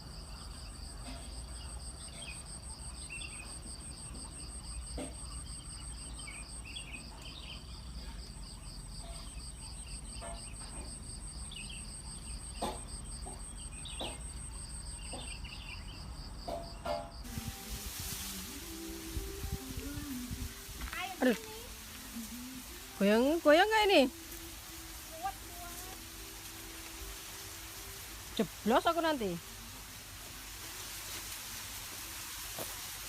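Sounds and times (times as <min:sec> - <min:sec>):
insects trilling: 0:00.0 - 0:33.0
rushing hiss: 0:17.2 - 0:33.0.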